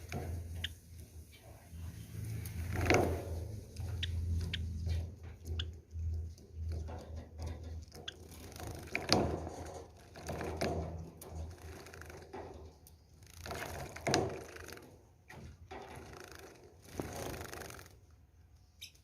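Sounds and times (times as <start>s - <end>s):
wings fluttering: 2.0s - 9.6s, 15.9s - 18.0s.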